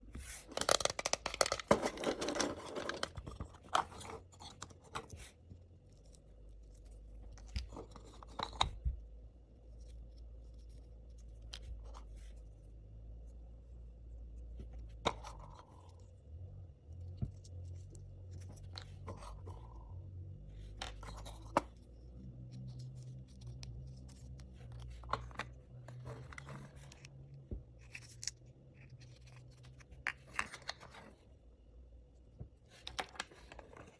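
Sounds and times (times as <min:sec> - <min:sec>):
low steady hum: 0:00.0 - 0:33.9
packaging crinkling and tearing: 0:00.2 - 0:03.1.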